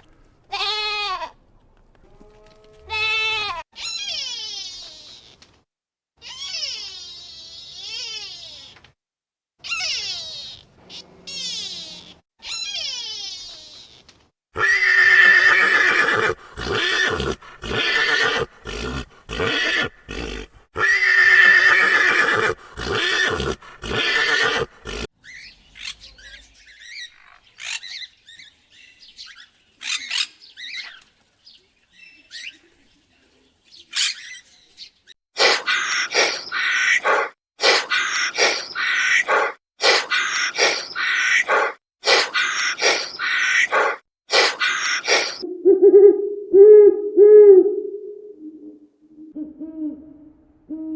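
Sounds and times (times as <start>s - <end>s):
loud animal calls: 14.6s - 25.1s, 35.4s - 46.1s.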